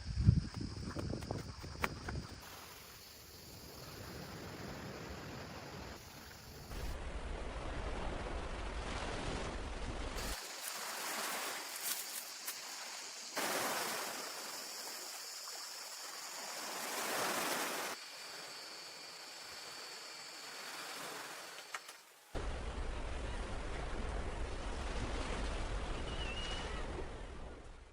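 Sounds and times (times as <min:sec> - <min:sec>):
wind rumble on microphone: 0:00.0 - 0:02.4
sea surf washing onto beach: 0:03.7 - 0:18.0.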